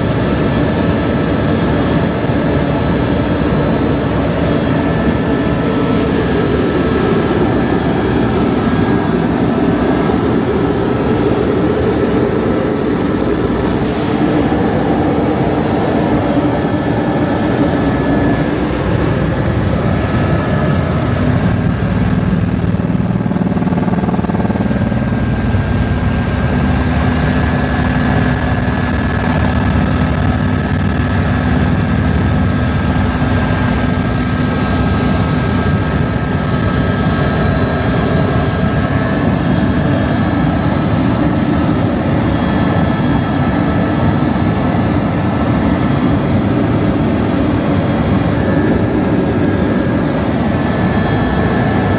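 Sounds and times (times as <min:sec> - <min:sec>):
helicopter engine and rotor drone: 0:00.0 - 0:51.9.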